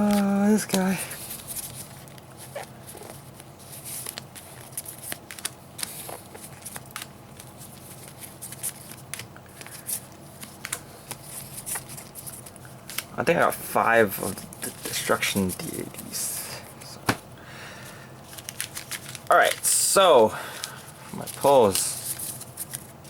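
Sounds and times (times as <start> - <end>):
cards flicking and tapping: 4.0 - 13.1, 17.0 - 17.2.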